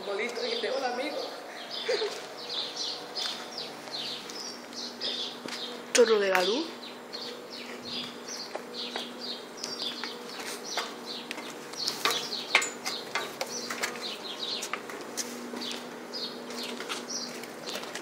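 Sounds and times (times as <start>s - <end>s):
small birds chirping: 0.0s - 18.0s
steady low hum: 0.0s - 18.0s
footsteps on metal stairs: 7.2s - 18.0s.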